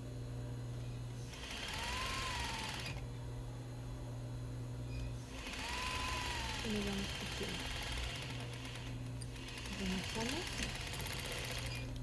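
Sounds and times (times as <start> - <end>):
steady low hum: 0.0 - 12.0
sewing machine stitching: 1.3 - 3.0, 5.3 - 11.9.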